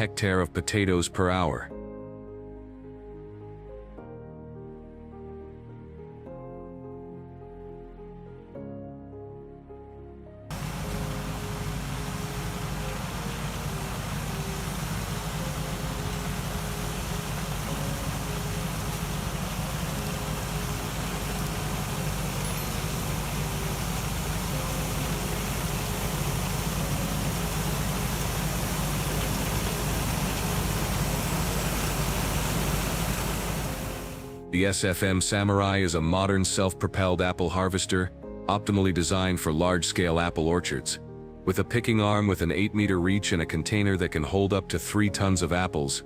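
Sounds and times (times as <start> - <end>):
large machine engine droning: 10.5 - 34.2.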